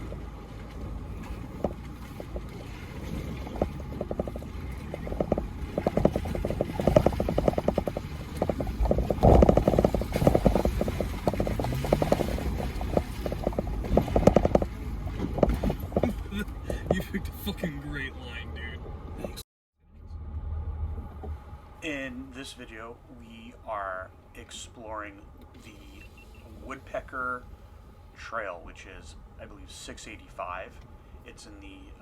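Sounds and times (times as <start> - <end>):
tires crunching over rocks: 0.0 - 19.4
engine running low: 0.0 - 32.0.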